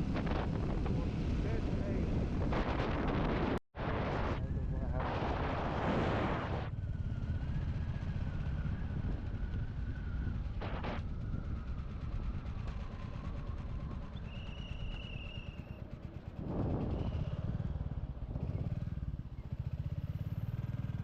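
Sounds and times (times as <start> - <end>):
wind gusts on microphone: 0.0 - 12.1, 16.3 - 19.1.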